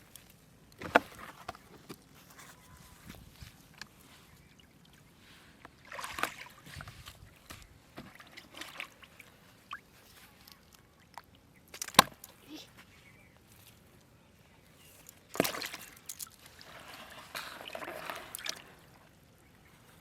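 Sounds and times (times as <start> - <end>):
water sloshing and splashing: 3.2 - 12.3, 15.0 - 19.2.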